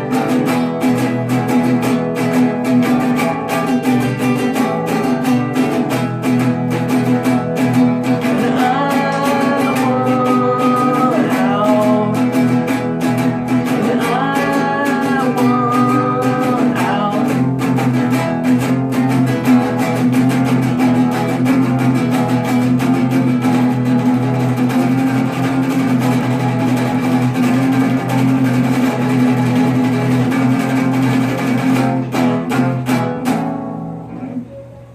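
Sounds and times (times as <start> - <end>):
acoustic guitar strumming chords: 0.0 - 34.9
person singing: 7.6 - 21.9.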